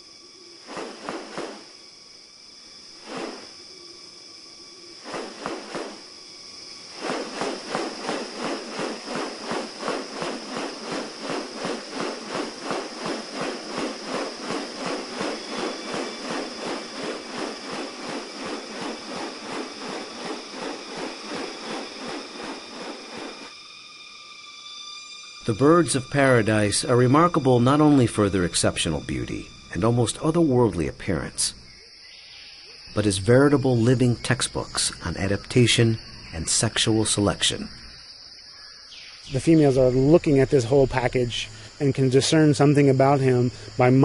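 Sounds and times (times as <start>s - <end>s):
fast insect pulsing: 0.0s - 31.4s
high-pitched insect drone: 0.0s - 44.0s.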